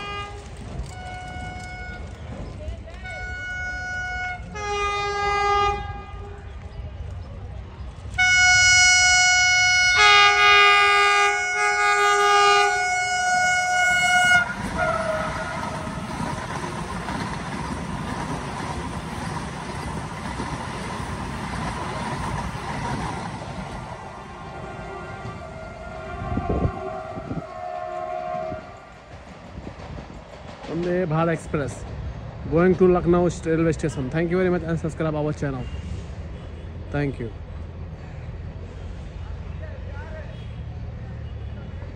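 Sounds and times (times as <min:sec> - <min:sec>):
train horn: 0:00.0 - 0:02.1, 0:03.0 - 0:06.5, 0:08.2 - 0:15.9, 0:24.2 - 0:28.9
train rumbling past: 0:00.0 - 0:41.9.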